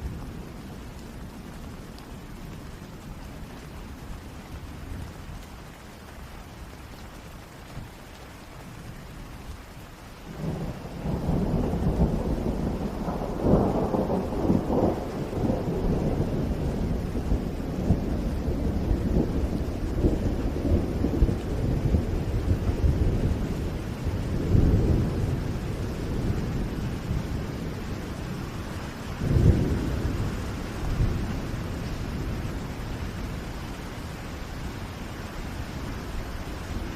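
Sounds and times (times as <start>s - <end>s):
steady rain: 0.0s - 36.9s
deep rumble of thunder: 10.3s - 36.9s.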